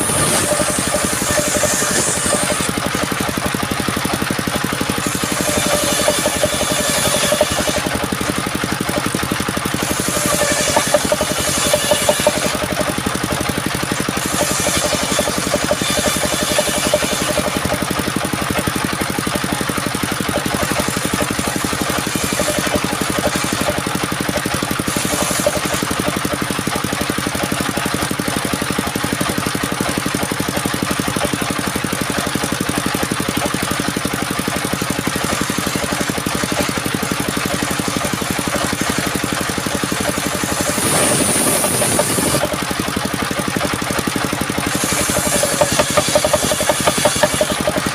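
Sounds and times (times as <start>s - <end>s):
small engine running: 0.0s - 47.9s
hiss: 40.5s - 42.4s.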